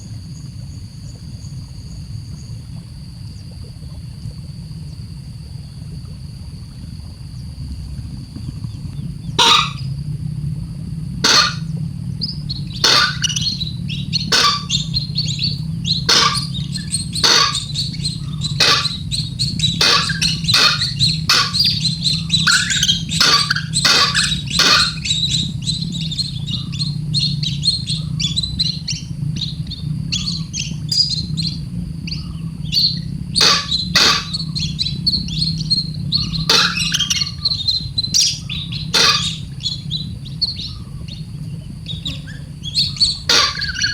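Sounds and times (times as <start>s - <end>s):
steady low hum: 0.0s - 43.9s
bird chick chirping: 9.4s - 9.8s, 11.2s - 11.7s, 12.7s - 29.0s, 32.1s - 41.2s, 41.8s - 43.9s.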